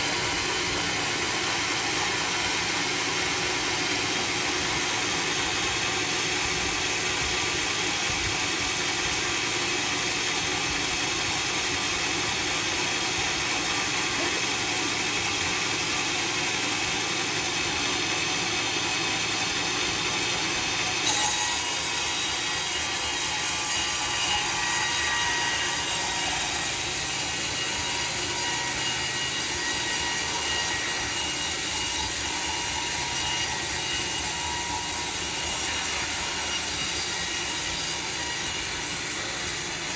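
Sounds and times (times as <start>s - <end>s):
sawmill cutting log: 0.0s - 39.9s.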